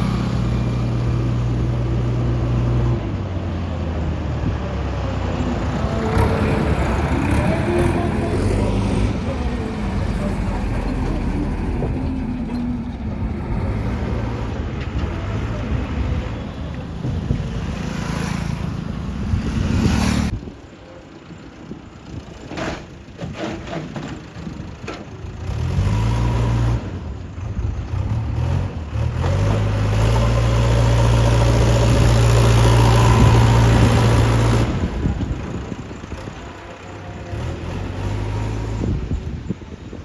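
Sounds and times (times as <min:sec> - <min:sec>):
heavy diesel engine revving: 0:04.3 - 0:16.0, 0:25.4 - 0:39.5.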